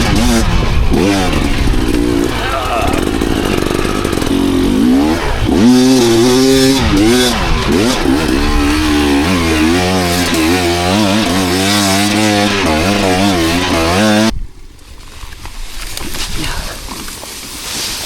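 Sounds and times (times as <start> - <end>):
dirt bike engine revving: 0.0 - 14.3.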